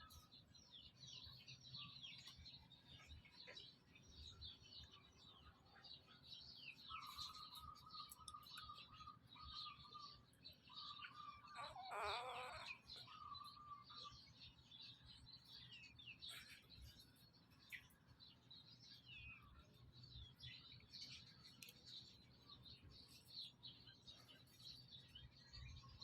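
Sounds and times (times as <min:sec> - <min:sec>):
small animals chirping and squeaking: 0:00.0 - 0:26.0
wavering animal call: 0:11.1 - 0:13.9.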